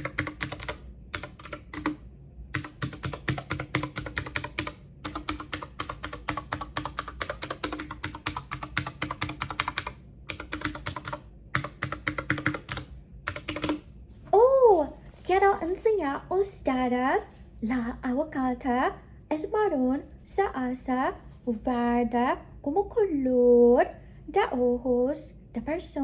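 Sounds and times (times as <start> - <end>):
keyboard typing clicks: 0.0 - 13.8.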